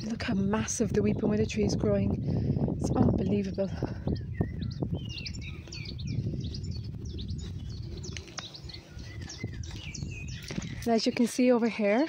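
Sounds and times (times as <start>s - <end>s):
songbirds chirping and singing: 0.0s - 12.0s.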